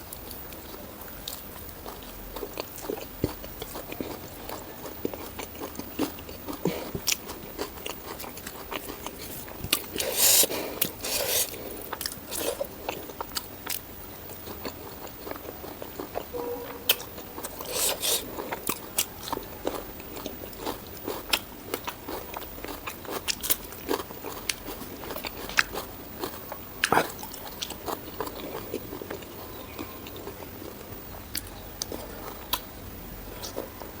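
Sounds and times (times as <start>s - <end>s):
chewing and biting food: 0.0s - 34.0s
crunchy bites: 16.9s - 33.7s
wet mouth clicks: 26.8s - 27.2s.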